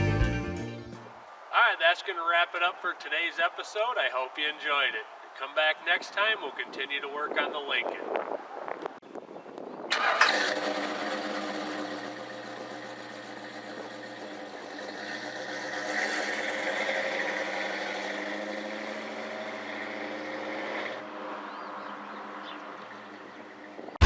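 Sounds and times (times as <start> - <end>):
car engine starting and running: 9.8 - 24.0.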